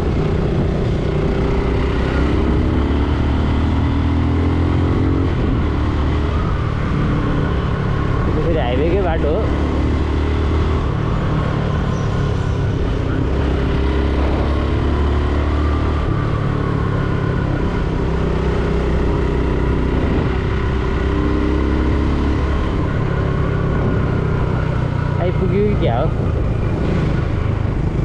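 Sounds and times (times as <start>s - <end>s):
motorcycle engine running: 0.0s - 28.0s
wind and road noise: 0.0s - 28.0s.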